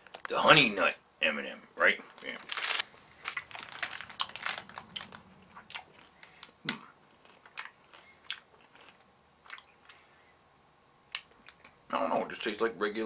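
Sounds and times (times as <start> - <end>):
chewing and crunching candy: 2.1 - 10.1.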